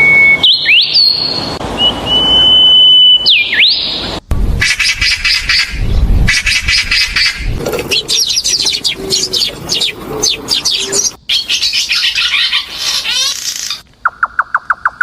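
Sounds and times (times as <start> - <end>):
small birds chirping: 6.0 - 15.0.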